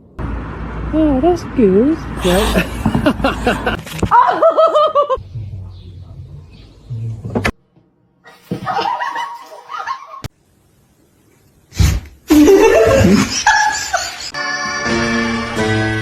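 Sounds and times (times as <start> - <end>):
people laughing: 2.2 - 5.2, 8.7 - 10.3, 12.3 - 14.4
guitar music: 14.4 - 16.0.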